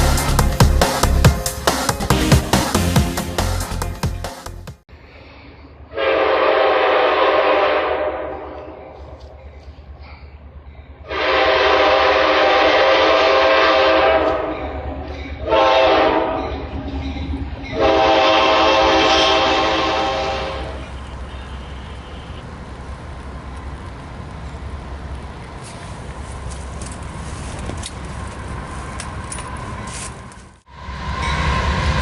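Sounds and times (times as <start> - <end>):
locomotive air horn blasts: 5.9 - 9.0, 11.1 - 16.7, 17.7 - 22.5.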